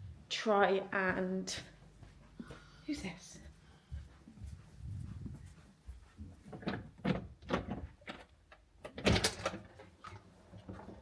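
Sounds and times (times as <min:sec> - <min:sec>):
door opening and shutting: 0:06.6 - 0:09.8.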